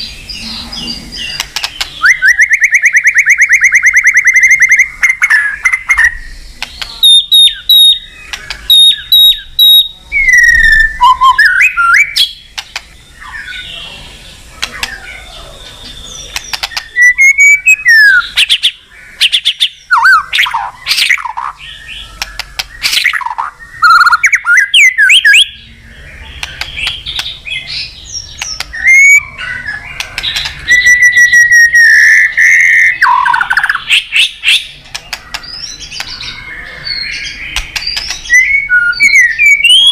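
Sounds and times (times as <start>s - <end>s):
songbird whistling and chipping: 0.0s - 13.8s, 14.6s - 39.9s.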